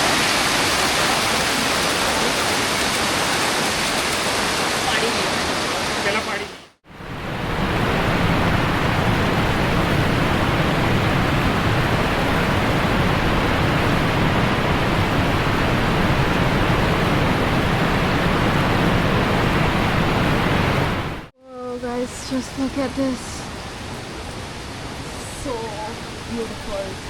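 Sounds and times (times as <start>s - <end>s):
waterfall rushing: 0.0s - 21.3s.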